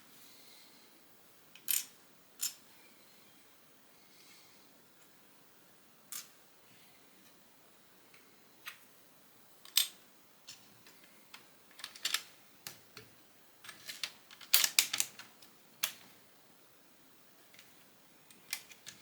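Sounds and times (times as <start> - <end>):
plastic bricks clicking together: 13.7 - 16.0.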